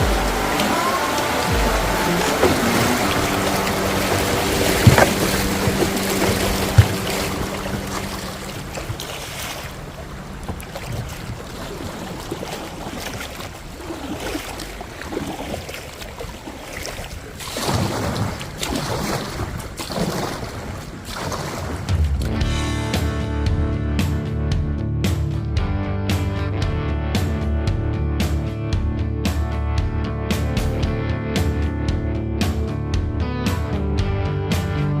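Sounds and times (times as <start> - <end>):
wind on microphone: 0.0 - 15.5
water rushing and splashing: 0.0 - 22.8.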